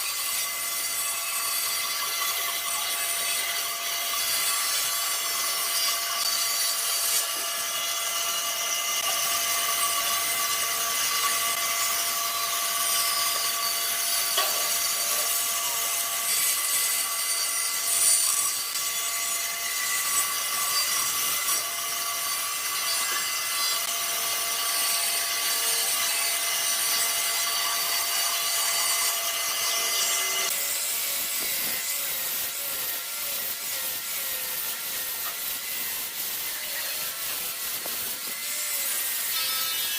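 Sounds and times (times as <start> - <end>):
power tool whining on wood: 0.0 - 39.9.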